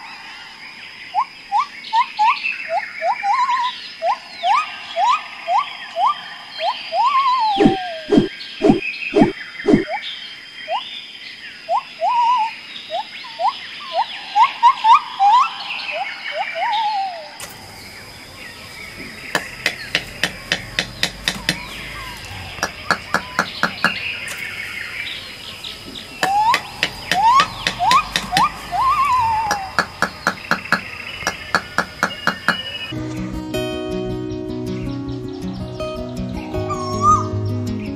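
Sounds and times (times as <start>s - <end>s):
sliding bird-like chirps and whistles: 1.1s - 11.0s, 11.7s - 33.0s, 36.6s - 37.4s
steady high-pitched tone: 4.3s - 9.9s, 25.2s - 31.0s
sharp clicks and taps: 19.4s - 21.8s, 22.6s - 24.4s, 25.9s - 28.7s, 29.5s - 32.6s.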